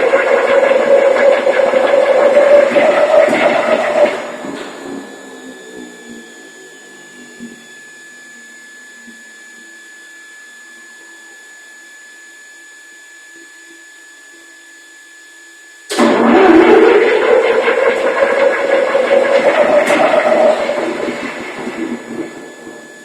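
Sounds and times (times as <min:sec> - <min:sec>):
diesel engine winding down: 0:00.0 - 0:05.1, 0:15.9 - 0:23.0
loud running sound: 0:00.0 - 0:05.4, 0:15.9 - 0:23.0
thin falling whine: 0:00.0 - 0:07.0, 0:15.9 - 0:23.0.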